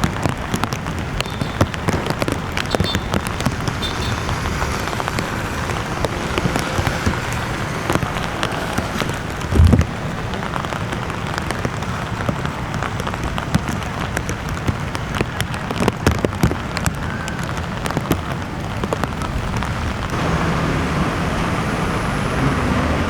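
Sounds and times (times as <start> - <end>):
raindrops hitting close by: 0.0 - 23.0
steady rain falling: 0.0 - 23.0
low thump: 9.5 - 10.1.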